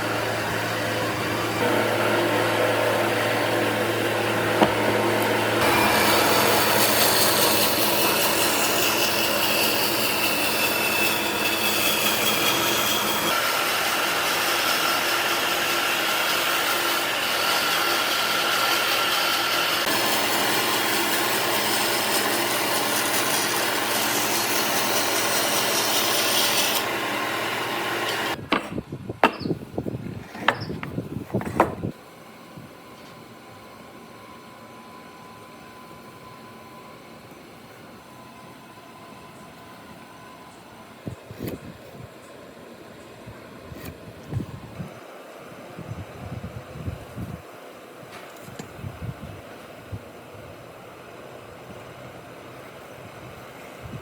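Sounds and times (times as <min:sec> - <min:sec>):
low motor hum: 0:00.0 - 0:08.0
power tool working wood: 0:00.0 - 0:28.4.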